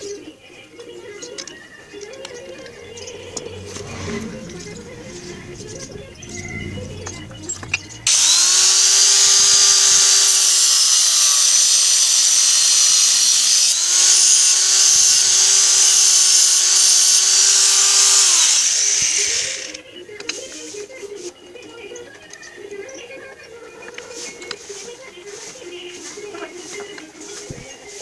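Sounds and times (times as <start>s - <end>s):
power tool cutting steel: 2.3s - 19.8s.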